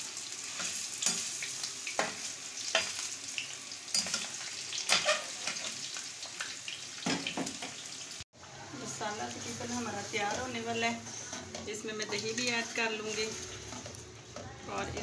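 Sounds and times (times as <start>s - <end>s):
food sizzling in hot oil: 0.0s - 15.0s
metal spoon scraping a pan: 4.9s - 5.7s.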